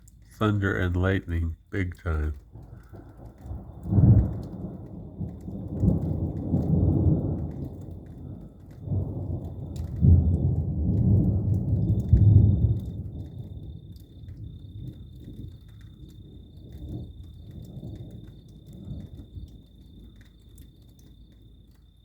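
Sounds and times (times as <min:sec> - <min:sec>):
thunder rumbling: 0:00.0 - 0:13.6.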